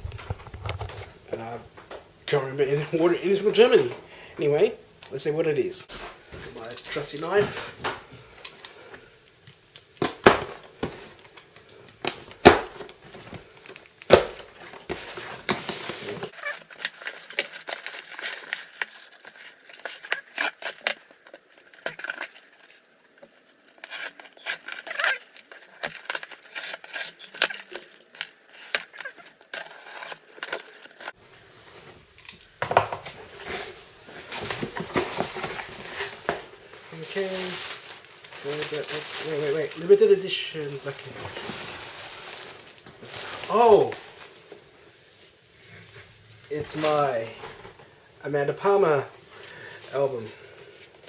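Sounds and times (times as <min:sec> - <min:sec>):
packaging crinkling and tearing: 0:10.0 - 0:31.2, 0:33.4 - 0:44.4.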